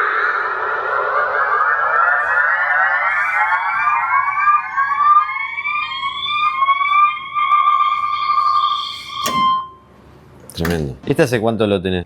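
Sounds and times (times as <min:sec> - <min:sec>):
synthesizer note gliding upward: 0:00.0 - 0:09.6.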